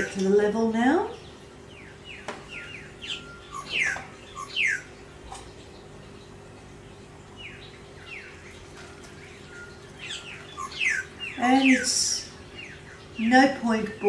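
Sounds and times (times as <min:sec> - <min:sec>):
steady low hum: 0:00.0 - 0:14.0
bird singing whistled notes: 0:01.2 - 0:05.0, 0:09.2 - 0:13.4.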